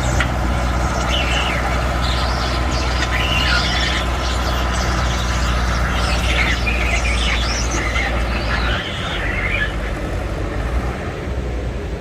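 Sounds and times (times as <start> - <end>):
tractor engine under load: 0.0 - 11.9.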